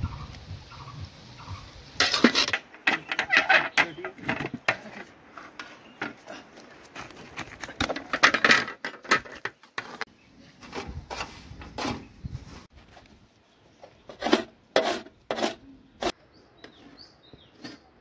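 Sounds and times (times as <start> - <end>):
metal ladle scraping a pot: 2.0 - 4.5.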